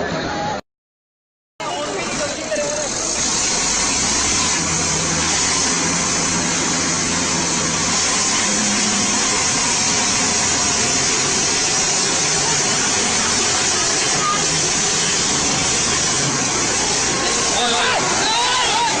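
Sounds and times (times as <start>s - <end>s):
engine noise with hiss: 1.6s - 19.0s.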